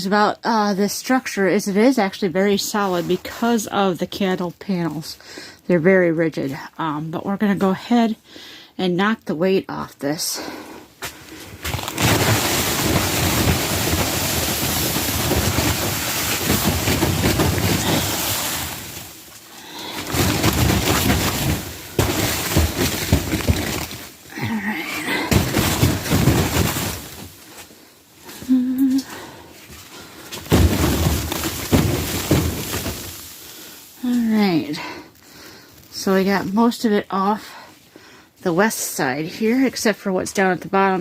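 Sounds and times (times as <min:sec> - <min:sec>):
snow sliding down plastic sheeting: 0:11.6 - 0:27.7, 0:30.2 - 0:34.8.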